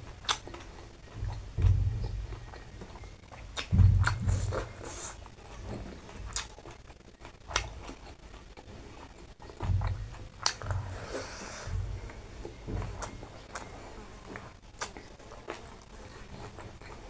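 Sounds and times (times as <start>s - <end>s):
person chewing and eating: 0.0s - 17.0s
soft low thumps: 0.9s - 6.4s, 9.4s - 14.6s.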